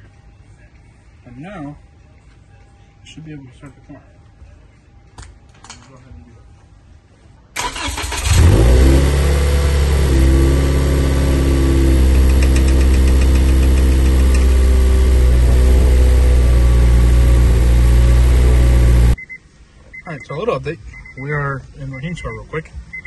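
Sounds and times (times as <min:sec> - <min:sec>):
starter motor cranking: 0:07.6 - 0:09.0
car engine idling: 0:07.6 - 0:19.9.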